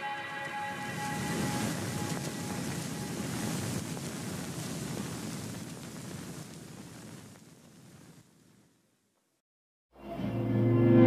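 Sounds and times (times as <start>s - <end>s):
background music with sustained chords: 0.0s - 3.0s, 10.0s - 11.0s.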